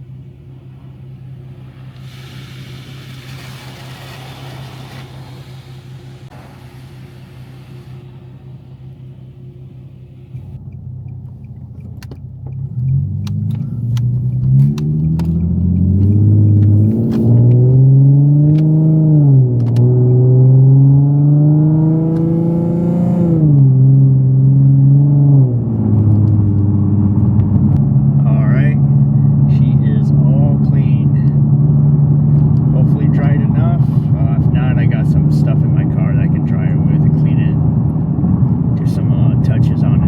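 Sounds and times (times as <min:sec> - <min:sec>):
car wash motor whirring: 0:00.0 - 0:10.7
sharp ticks: 0:10.6 - 0:13.4.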